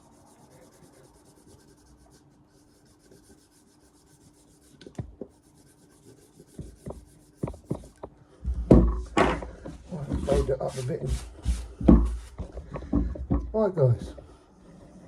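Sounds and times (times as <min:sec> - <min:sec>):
axe blade rubbing on abrasive: 0:09.8 - 0:12.4.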